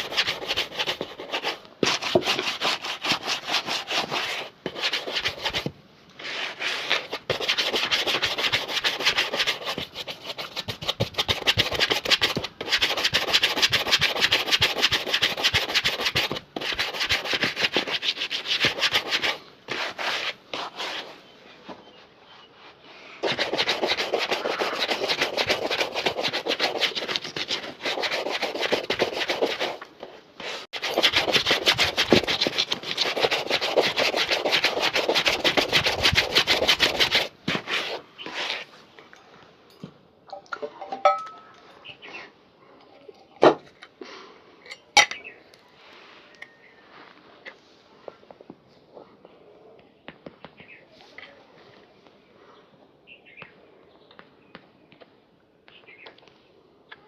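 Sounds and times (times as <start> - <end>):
rubbing on a shoe: 0.0 - 38.8.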